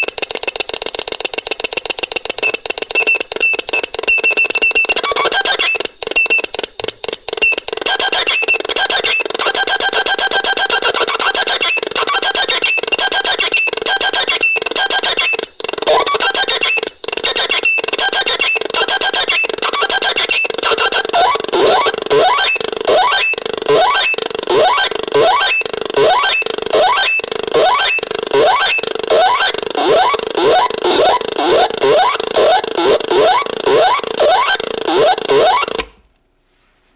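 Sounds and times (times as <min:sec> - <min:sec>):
rapid electronic clicks: 0:00.0 - 0:36.1
steady high tones: 0:19.2 - 0:36.0.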